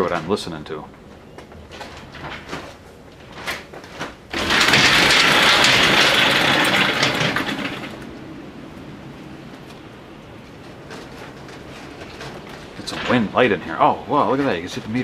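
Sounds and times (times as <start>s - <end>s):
high wind rushing: 4.3s - 15.0s
door opening: 10.7s - 13.6s.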